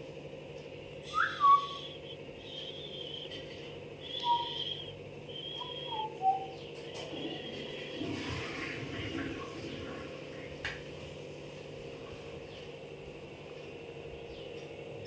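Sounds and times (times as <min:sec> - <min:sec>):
steady low hum: 0:00.0 - 0:15.0
birds whistling calls: 0:01.0 - 0:07.8
buzzy bird chirping: 0:01.1 - 0:03.4, 0:04.0 - 0:06.8.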